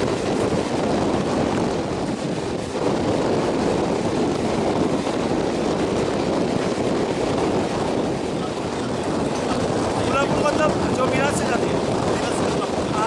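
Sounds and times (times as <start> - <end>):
train wheels rumbling on rail: 0.0 - 13.0
wind buffeting microphone: 0.0 - 13.0.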